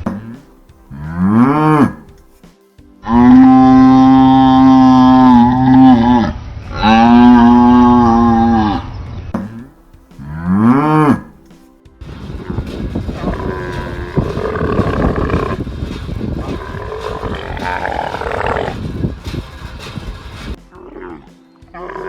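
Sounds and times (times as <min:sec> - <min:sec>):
cow mooing: 0:00.9 - 0:02.1, 0:03.1 - 0:08.9, 0:10.2 - 0:11.3, 0:12.4 - 0:19.0
long rough sound: 0:12.0 - 0:20.6.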